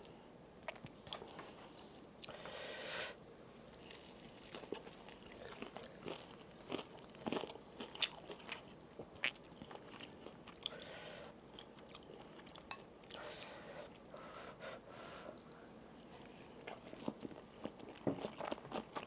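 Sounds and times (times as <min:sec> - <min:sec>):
person chewing crunchy food: 0:03.7 - 0:14.1, 0:16.1 - 0:19.0.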